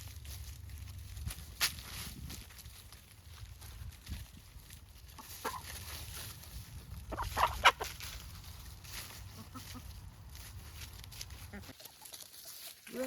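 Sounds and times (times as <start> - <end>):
chickens clucking: 5.0 - 13.0.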